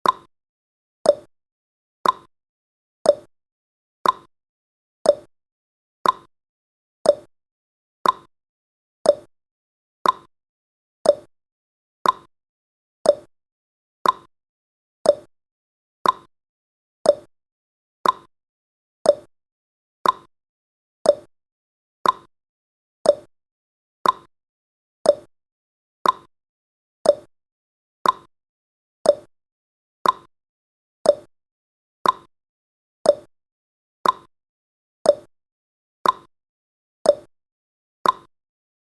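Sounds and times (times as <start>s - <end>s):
countdown timer ticking: 5.1s - 5.3s, 7.1s - 7.3s, 9.1s - 9.3s, 11.1s - 11.3s, 13.1s - 13.3s, 15.1s - 15.3s, 17.1s - 17.3s, 19.1s - 19.3s, 21.1s - 21.3s, 23.1s - 23.3s, 24.0s - 24.3s, 25.1s - 25.3s, 26.0s - 26.3s, 27.1s - 27.3s, 28.0s - 28.3s, 29.1s - 29.3s, 30.0s - 30.3s, 31.1s - 31.3s, 32.0s - 32.3s, 33.1s - 33.3s, 34.0s - 34.3s, 35.1s - 35.3s, 37.1s - 37.3s, 38.0s - 38.3s.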